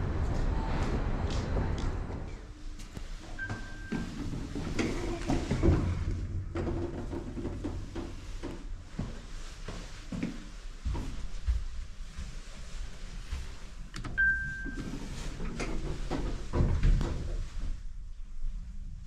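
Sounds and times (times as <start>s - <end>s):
low elevator hum: 0.0s - 19.0s
elevator clunks and knocks: 3.4s - 8.2s, 14.2s - 17.4s.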